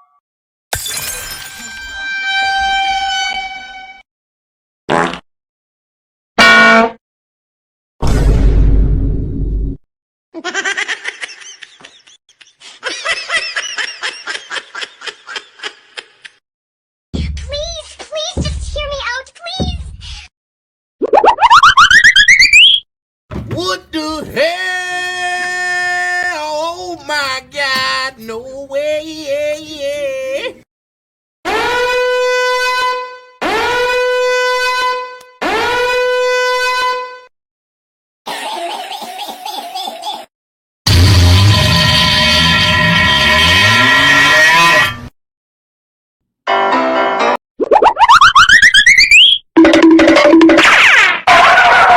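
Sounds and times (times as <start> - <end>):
high-pitched laughter: 10.4 - 16.4, 38.3 - 40.3
long horn toots: 40.9 - 45.0.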